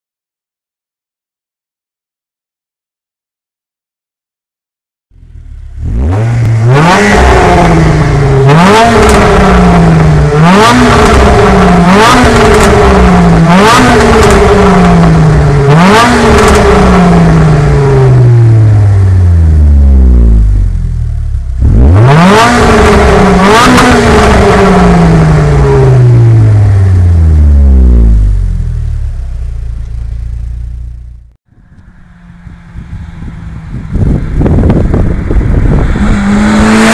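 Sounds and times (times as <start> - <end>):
car engine revving hard: 5.7 - 20.6, 21.6 - 28.5, 34.0 - 36.9.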